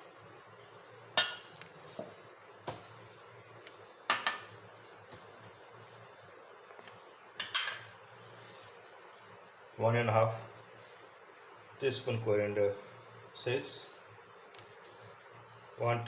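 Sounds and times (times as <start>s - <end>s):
utensils and dishes clinking: 7.4s - 8.0s.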